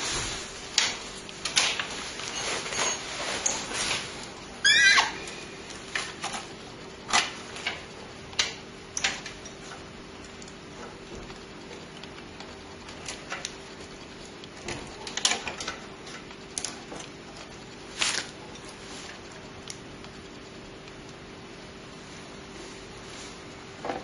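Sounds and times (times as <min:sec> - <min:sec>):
loud short squeak: 0:04.6 - 0:05.4.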